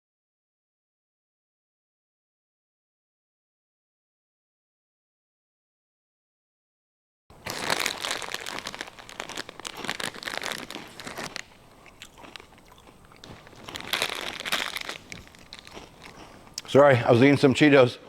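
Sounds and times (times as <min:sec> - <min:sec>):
person chewing crunchy snacks: 0:07.3 - 0:16.7.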